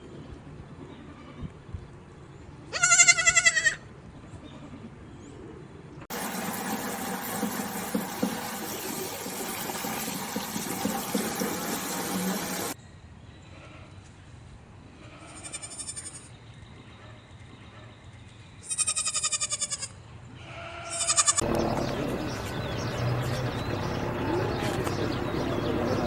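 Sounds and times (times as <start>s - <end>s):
goat bleating: 2.8s - 3.8s, 20.6s - 25.8s.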